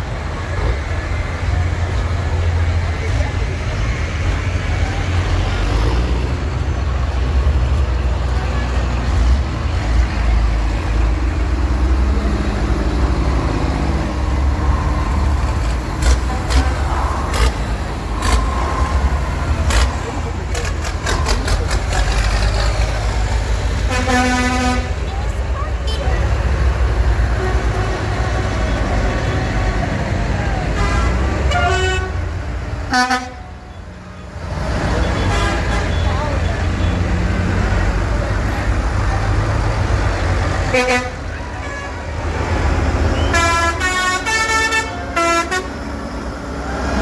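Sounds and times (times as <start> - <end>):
tractor engines rumbling: 0.0 - 47.0
vehicle horns tooting: 23.8 - 25.1, 25.8 - 26.2, 30.7 - 32.3, 32.9 - 33.9, 35.0 - 37.0, 40.6 - 42.1, 43.1 - 45.8.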